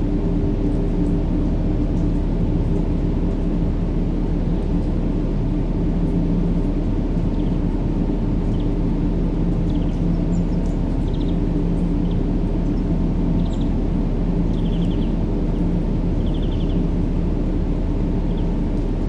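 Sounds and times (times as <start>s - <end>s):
faint steady hum: 0.0s - 19.0s
low rumbling white noise: 0.0s - 19.0s.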